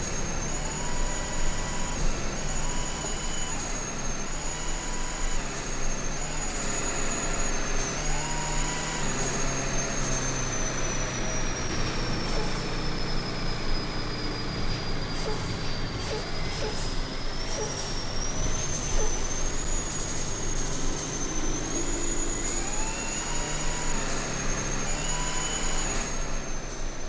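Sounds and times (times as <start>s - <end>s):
truck engine driving: 0.0s - 27.0s.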